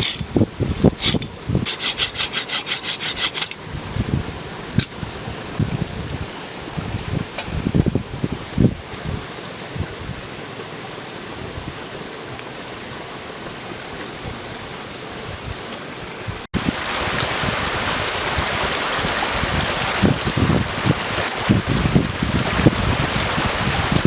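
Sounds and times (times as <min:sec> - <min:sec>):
wind buffeting microphone: 0:00.0 - 0:02.2, 0:03.1 - 0:10.3, 0:14.2 - 0:24.0
stream running: 0:00.0 - 0:24.0.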